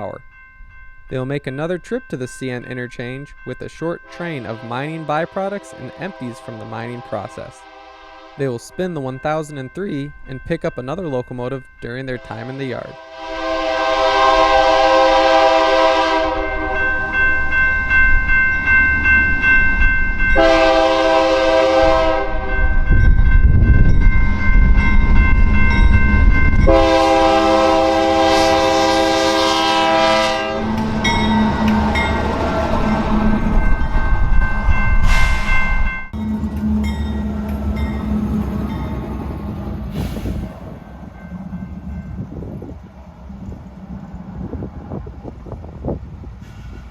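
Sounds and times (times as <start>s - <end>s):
locomotive air horn: 4.1s - 8.4s, 12.4s - 17.0s, 20.4s - 22.6s, 26.6s - 32.0s
locomotive engine rumble: 22.7s - 46.9s.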